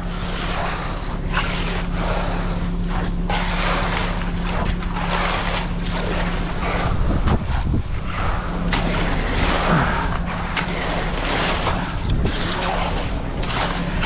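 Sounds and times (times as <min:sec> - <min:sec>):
truck engine running: 0:00.0 - 0:14.0.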